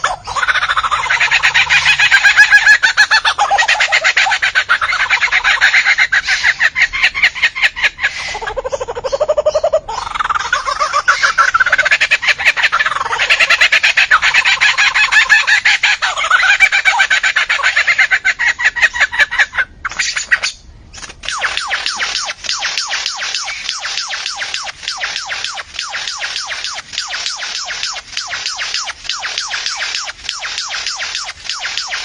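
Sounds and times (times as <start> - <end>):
birds clucking and squawking: 0.0 - 32.0.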